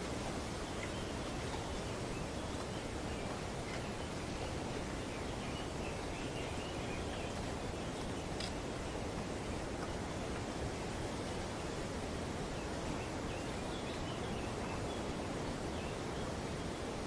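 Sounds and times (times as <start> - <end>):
wind rustling tree foliage: 0.0 - 17.0.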